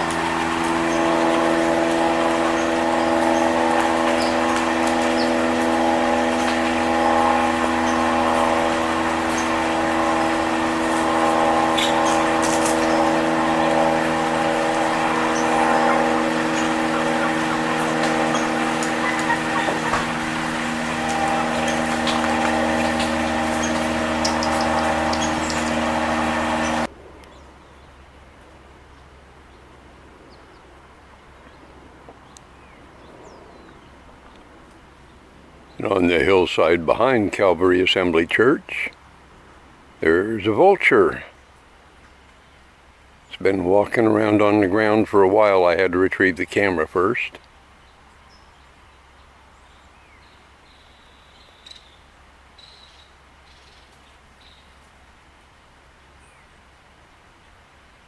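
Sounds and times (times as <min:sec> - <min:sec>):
loud mechanical hum: 0:00.0 - 0:27.5
distant small birds chirping: 0:00.0 - 0:58.0
thin bird chirps: 0:47.8 - 0:54.8.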